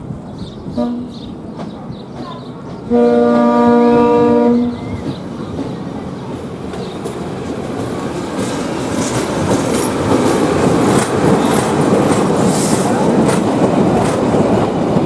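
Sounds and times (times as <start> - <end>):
train running noise: 0.0 - 15.0
train horn chord: 0.8 - 1.2, 2.9 - 4.8.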